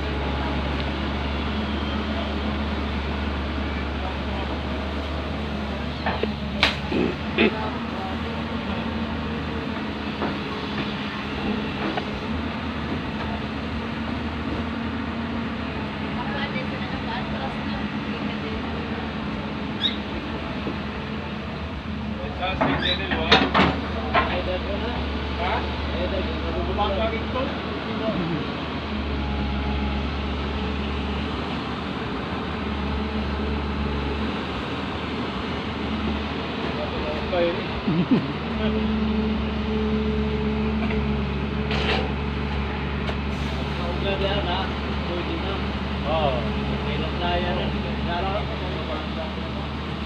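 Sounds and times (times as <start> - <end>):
backhoe diesel engine droning: 0.0 - 50.0.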